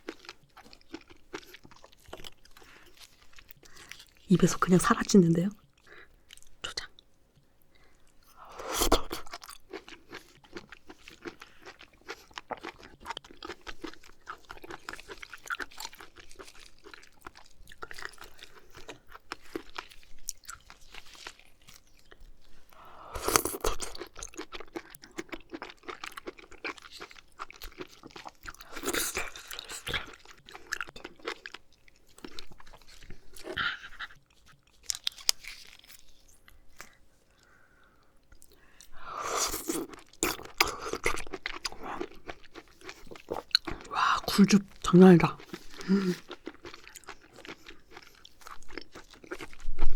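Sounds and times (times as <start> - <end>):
wet chewing sounds: 0.0 - 49.9.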